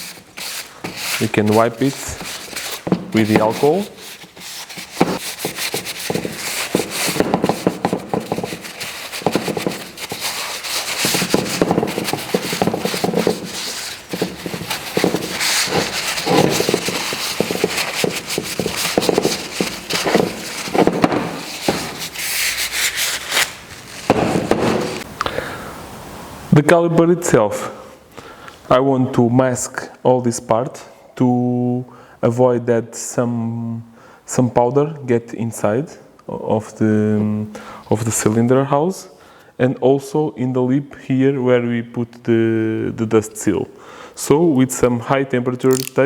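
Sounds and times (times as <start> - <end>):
cloth rubbing on metal: 0.0 - 25.1.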